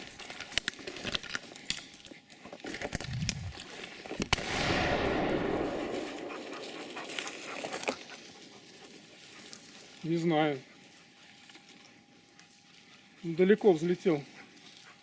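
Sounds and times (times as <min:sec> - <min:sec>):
brush and twigs crackling: 0:00.0 - 0:15.0
shotgun shot echoing: 0:04.3 - 0:08.1.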